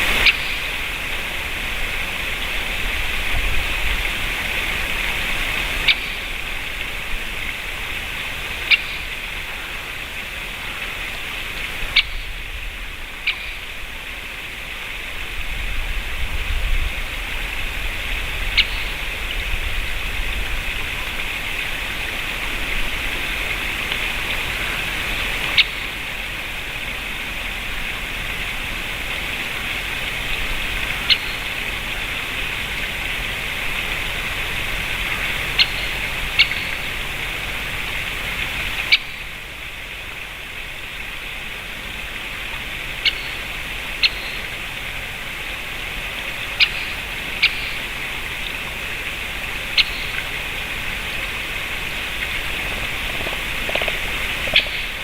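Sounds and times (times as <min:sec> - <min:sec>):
woodpecker sharp kik calls: 0:00.1 - 0:00.9, 0:05.8 - 0:06.4, 0:08.6 - 0:09.8, 0:11.8 - 0:12.4, 0:13.2 - 0:13.7, 0:18.5 - 0:19.0, 0:25.4 - 0:26.0, 0:30.8 - 0:31.6, 0:35.1 - 0:37.0, 0:38.8 - 0:39.3, 0:42.9 - 0:44.6, 0:46.4 - 0:48.0, 0:49.6 - 0:50.3, 0:52.7 - 0:55.0.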